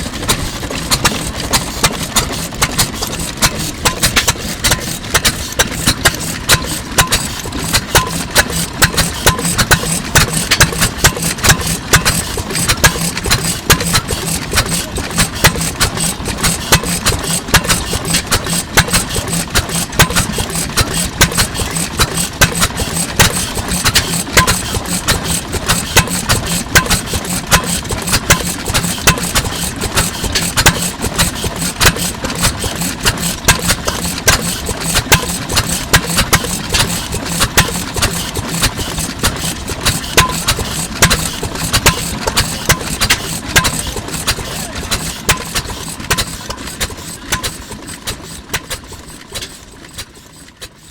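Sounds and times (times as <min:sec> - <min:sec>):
stationary engine running: 0:00.0 - 0:50.9.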